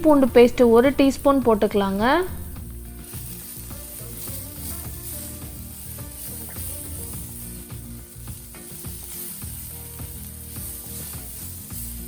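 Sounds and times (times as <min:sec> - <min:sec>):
onions sizzling in hot oil: 0:00.0 - 0:12.0
spatula scraping a pan: 0:02.8 - 0:12.0.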